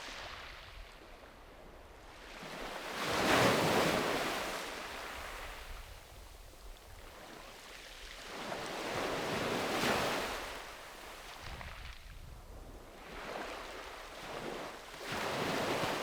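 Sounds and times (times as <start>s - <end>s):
sea waves washing onto beach: 13.0s - 16.0s.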